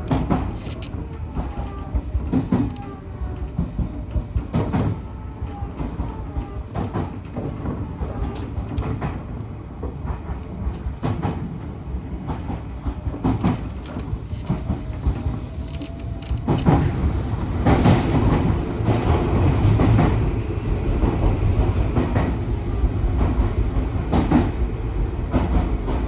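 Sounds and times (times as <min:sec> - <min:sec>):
wheels clacking over rail joints: 0:00.0 - 0:11.6, 0:12.2 - 0:20.2
train rumble: 0:00.0 - 0:26.0.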